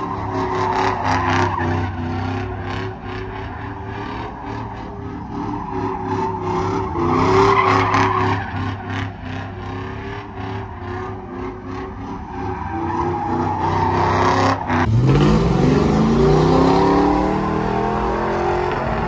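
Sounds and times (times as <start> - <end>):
tyres squealing on pavement: 0.0 - 9.3, 12.2 - 14.9
truck engine revving: 0.0 - 19.0.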